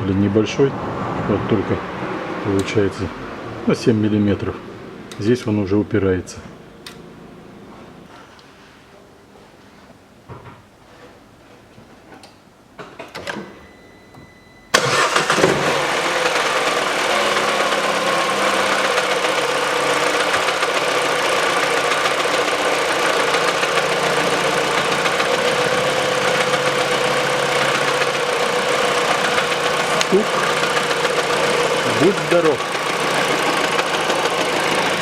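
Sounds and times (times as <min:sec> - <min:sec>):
car engine idling: 0:14.7 - 0:35.0
engine knocking: 0:15.8 - 0:35.0.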